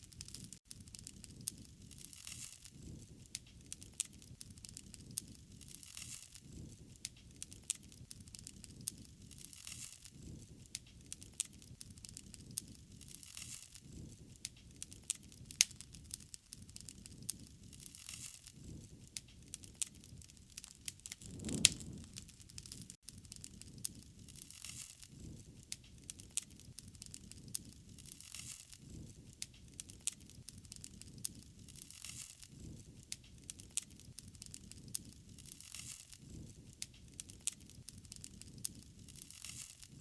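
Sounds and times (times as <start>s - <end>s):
wood fire crackling: 0.0s - 40.0s
soft low rush: 21.1s - 22.4s.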